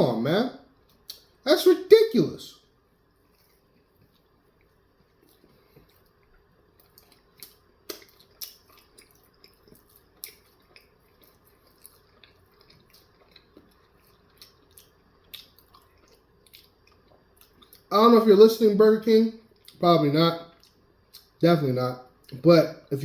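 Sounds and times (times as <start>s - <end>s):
chewing with wet mouth clicks: 0.9s - 1.3s, 3.2s - 17.9s, 19.5s - 19.8s, 20.4s - 21.4s.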